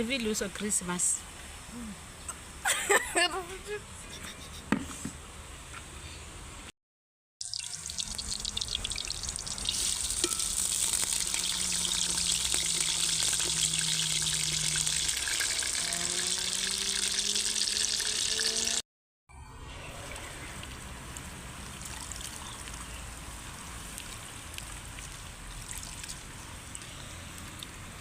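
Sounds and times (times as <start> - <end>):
food sizzling in hot oil: 7.4 - 18.8.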